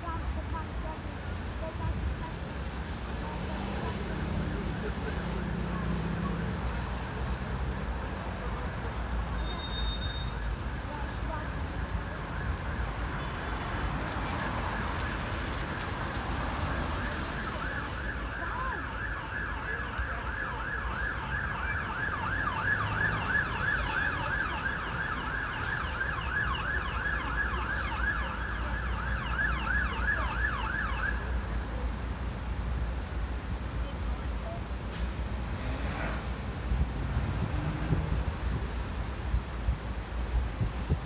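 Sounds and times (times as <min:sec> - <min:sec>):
low rumble of traffic: 0:00.0 - 0:41.0
siren yelping: 0:16.8 - 0:31.3.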